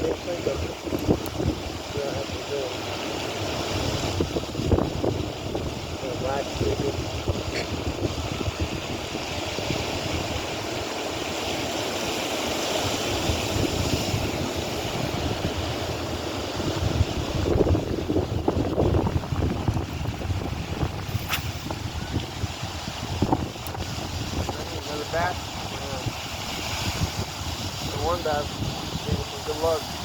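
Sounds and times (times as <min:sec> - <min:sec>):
wind gusting on microphone: 0:00.0 - 0:30.0
brief click: 0:21.1 - 0:21.8.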